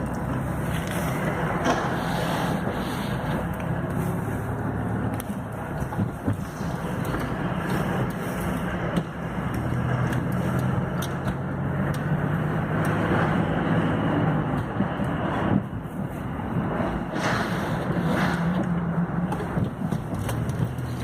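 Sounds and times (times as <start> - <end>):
car engine humming: 0.0 - 21.0
rushing noise: 11.7 - 19.2.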